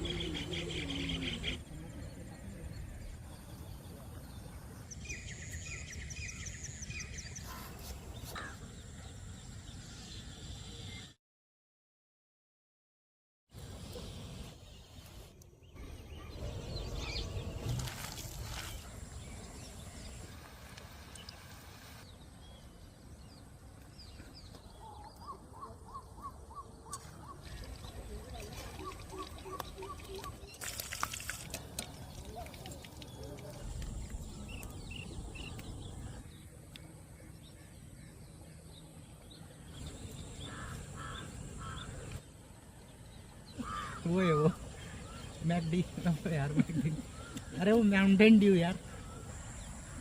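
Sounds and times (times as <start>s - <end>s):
small birds chirping: 13.6s - 50.0s
harsh bird calls: 24.0s - 31.2s, 39.7s - 42.2s, 43.5s - 50.0s.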